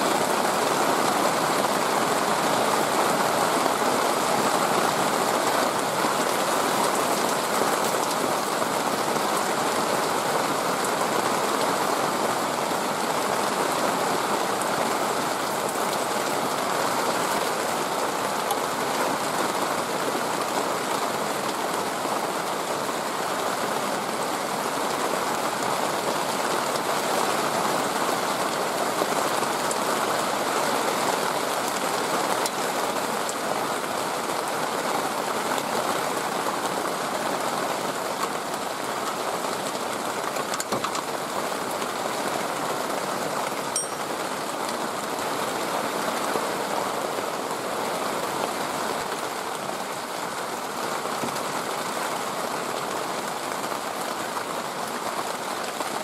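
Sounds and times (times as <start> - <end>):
water rushing: 38.3 - 56.0.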